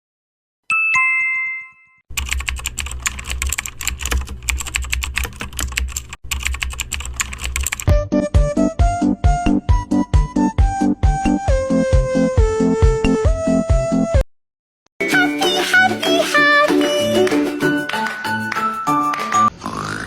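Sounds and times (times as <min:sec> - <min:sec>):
computer keyboard typing: 0:02.1 - 0:07.9
electronic music: 0:15.0 - 0:19.5.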